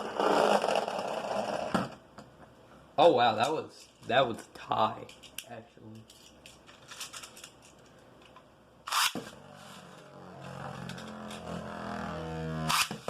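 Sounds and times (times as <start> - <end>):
launcher ripcord rip: 8.9 - 9.3, 12.5 - 13.0.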